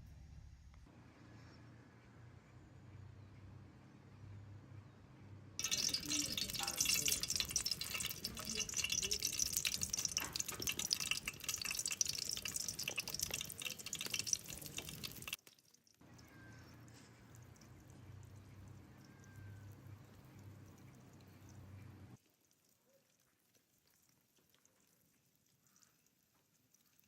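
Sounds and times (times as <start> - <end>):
running splashing water: 5.6 - 15.6.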